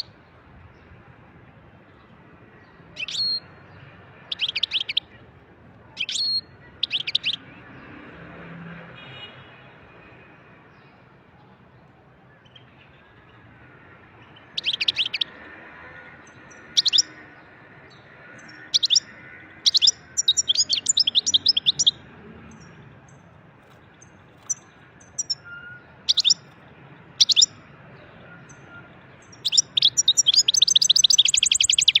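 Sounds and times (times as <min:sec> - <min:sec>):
bird twittering song: 0:02.6 - 0:05.2, 0:06.0 - 0:07.6, 0:14.2 - 0:15.4, 0:16.3 - 0:17.3, 0:17.9 - 0:32.0.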